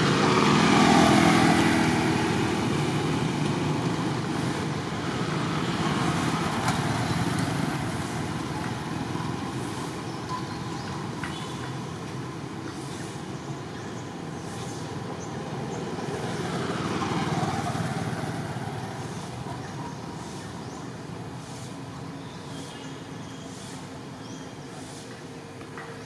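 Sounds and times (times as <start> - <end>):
vehicle engine and tyres passing: 0.0 - 22.2.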